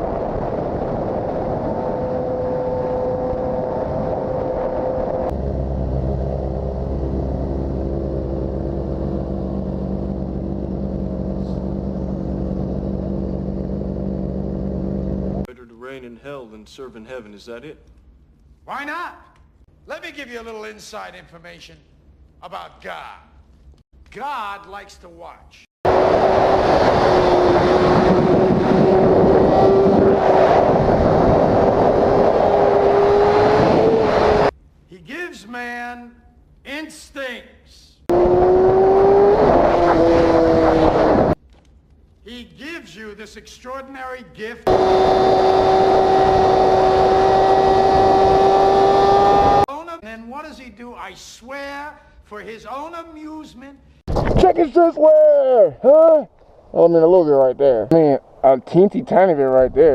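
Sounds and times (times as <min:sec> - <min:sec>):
wind rush on microphone: 0:00.0 - 0:05.4, 0:25.9 - 0:34.5, 0:38.1 - 0:41.4
motorcycle engine: 0:01.0 - 0:15.5, 0:25.9 - 0:34.5, 0:38.1 - 0:41.4, 0:44.7 - 0:49.7
motorcycle engine running: 0:02.2 - 0:15.5.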